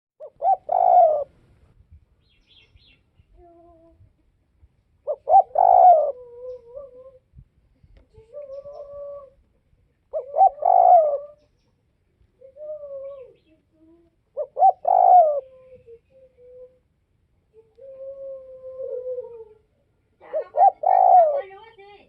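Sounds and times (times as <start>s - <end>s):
dove cooing: 0.2s - 1.4s, 5.0s - 7.3s, 8.3s - 11.8s, 12.4s - 16.8s, 17.8s - 21.7s.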